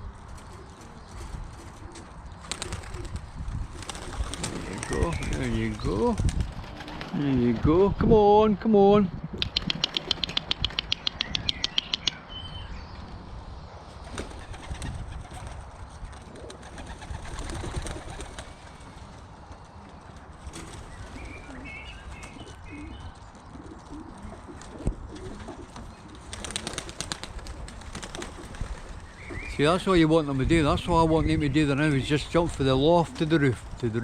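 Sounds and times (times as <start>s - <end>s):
pigeon wings flapping: 0.4s - 7.6s, 9.4s - 11.2s, 14.0s - 22.9s, 23.6s - 29.5s
pigeons cooing: 3.8s - 6.2s, 9.4s - 12.2s, 16.1s - 30.1s.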